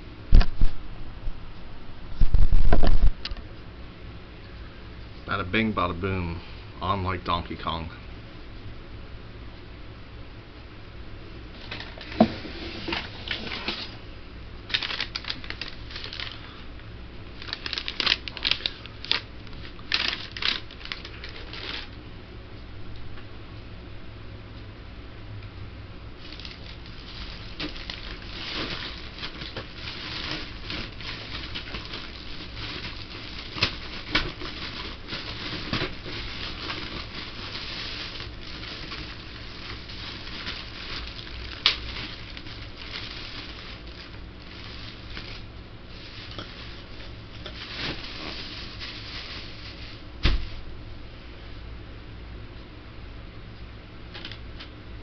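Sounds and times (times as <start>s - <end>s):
material rustling and crackling: 26.2s - 50.7s.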